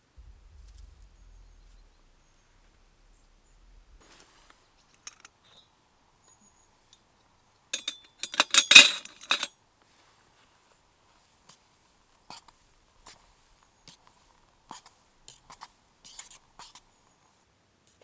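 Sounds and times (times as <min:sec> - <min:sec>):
small hard objects clinking: 0:07.8 - 0:09.5.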